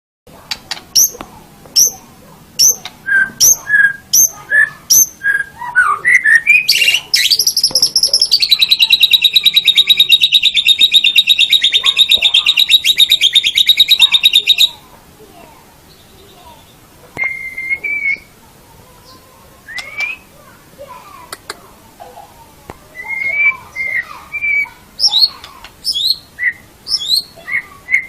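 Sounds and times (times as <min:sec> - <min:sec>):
bird singing: 0:01.8 - 0:14.8, 0:15.9 - 0:18.3, 0:19.0 - 0:20.3, 0:23.0 - 0:28.0.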